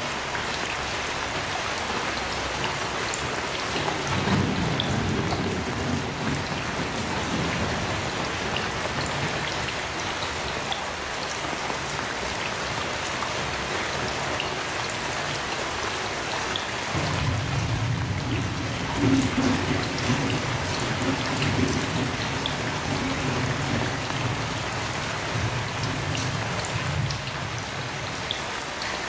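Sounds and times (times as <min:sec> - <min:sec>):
heavy rain falling: 0:00.0 - 0:29.0
thunder rumbling: 0:02.7 - 0:10.5, 0:16.8 - 0:28.7.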